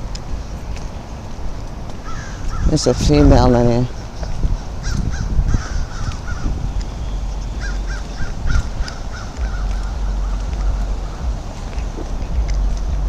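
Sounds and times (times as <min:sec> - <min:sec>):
steady low rumble: 0:00.0 - 0:13.0
crows cawing: 0:02.0 - 0:02.7, 0:03.9 - 0:12.5.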